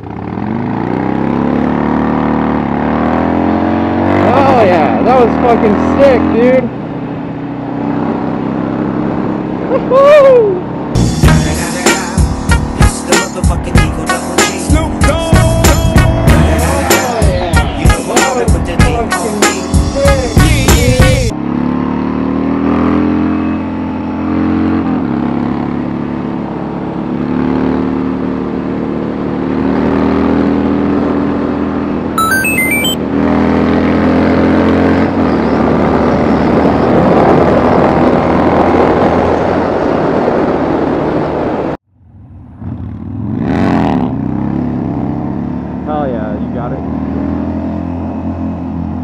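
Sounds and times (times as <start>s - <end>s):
high beeping tones: 32.2s - 33.0s.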